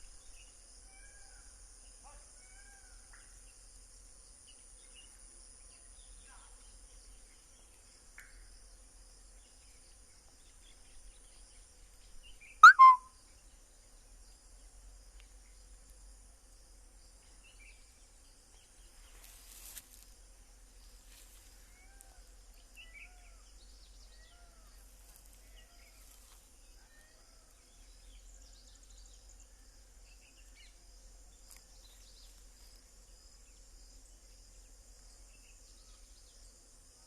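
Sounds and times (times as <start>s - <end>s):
birds calling: 12.6s - 13.0s.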